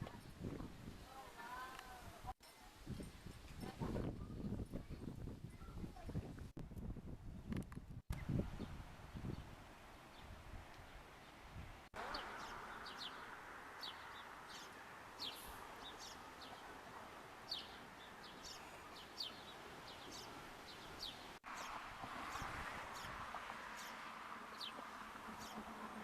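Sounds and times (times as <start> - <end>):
sparrows chirping: 12.0 - 25.8.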